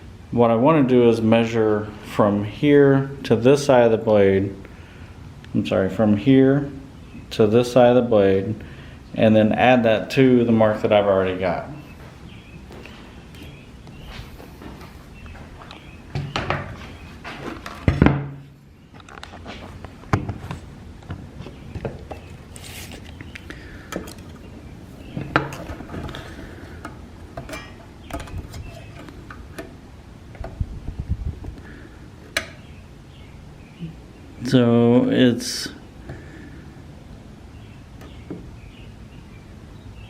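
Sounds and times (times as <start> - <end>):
rattling knocks: 25.1 - 26.2.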